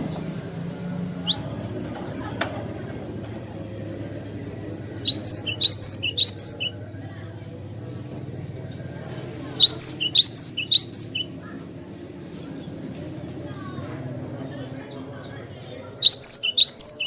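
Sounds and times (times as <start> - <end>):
bird singing rapid high notes: 1.2 - 1.5, 5.0 - 6.8, 9.6 - 11.3, 16.0 - 17.0.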